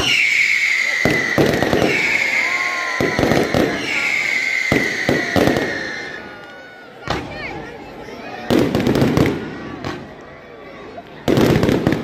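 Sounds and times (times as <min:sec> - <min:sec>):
high whistle sliding down: 0:00.0 - 0:06.2
fireworks bangs and crackles: 0:00.0 - 0:12.0.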